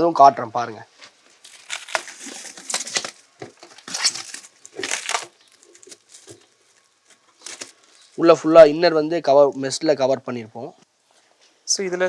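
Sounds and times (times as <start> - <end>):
rustling crunching handling noises: 1.0 - 8.7.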